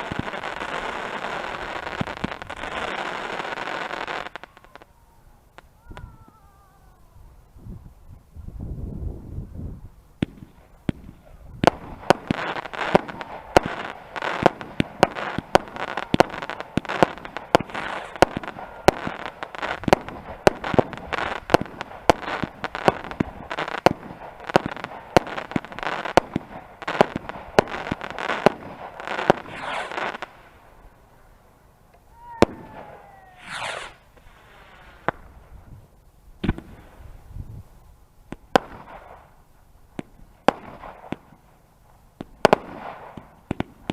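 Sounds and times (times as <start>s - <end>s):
fireworks banging: 0.0s - 4.9s, 10.2s - 30.8s, 31.9s - 35.8s, 36.4s - 37.0s, 38.3s - 41.5s, 42.2s - 43.9s
whistling firework rising: 28.2s - 30.3s, 32.1s - 35.1s.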